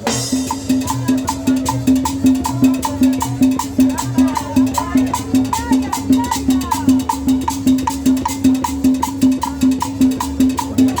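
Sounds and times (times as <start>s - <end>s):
cumbia music with percussion: 0.0s - 11.0s.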